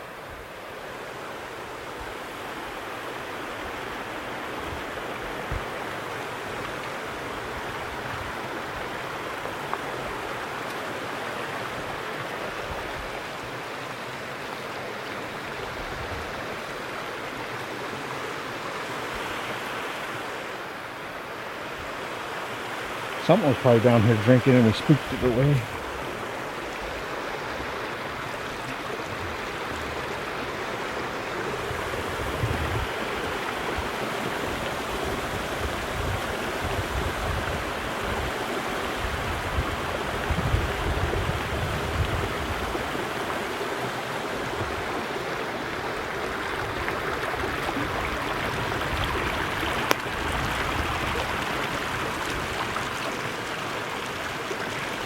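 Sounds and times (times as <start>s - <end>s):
stream running over rocks: 0.0s - 55.0s.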